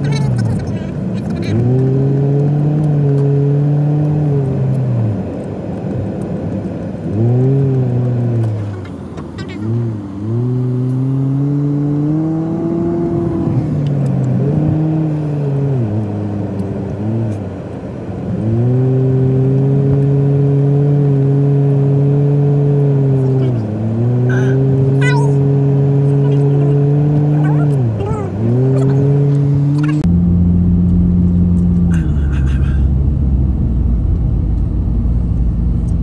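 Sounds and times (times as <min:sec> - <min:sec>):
car engine hum from cabin: 0:00.0 - 0:36.0.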